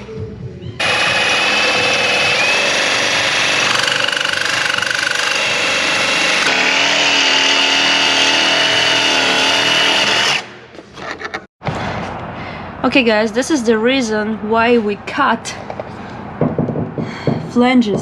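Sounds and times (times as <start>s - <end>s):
reciprocating saw cutting steel: 0.8s - 10.6s.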